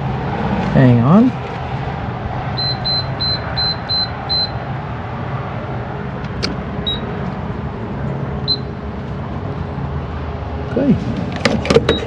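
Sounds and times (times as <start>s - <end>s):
short high-pitched electronic beeps: 2.6s - 4.6s.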